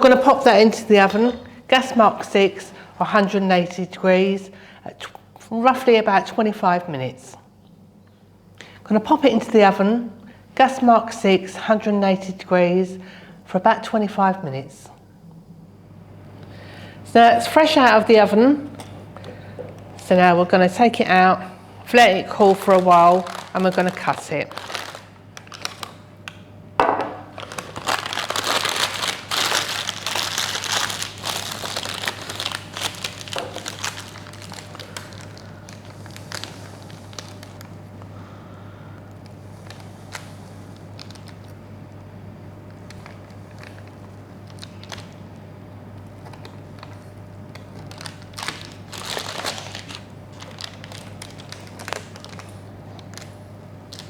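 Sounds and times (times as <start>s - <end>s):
paper crinkling: 22.0s - 26.4s, 27.3s - 38.4s, 39.2s - 41.5s, 42.7s - 45.2s, 46.2s - 54.0s
brownie crackling and crunching: 27.3s - 37.8s, 42.7s - 54.0s.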